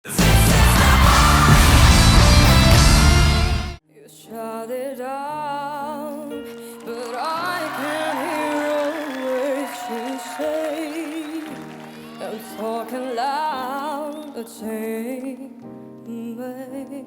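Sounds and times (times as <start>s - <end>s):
sustained accompaniment chords: 0.0s - 3.8s
solo voice singing with vibrato: 4.0s - 17.0s.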